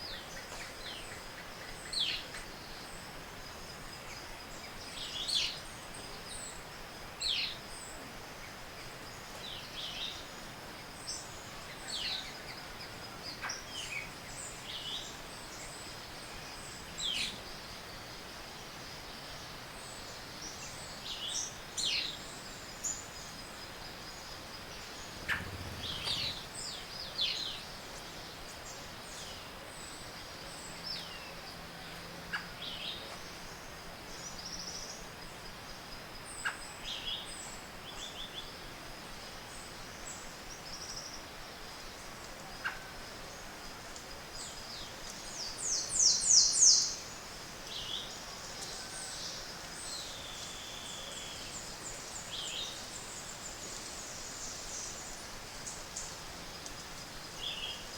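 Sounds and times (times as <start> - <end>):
background hiss: 0.0 - 57.9
birds chirping and calling: 25.0 - 26.6.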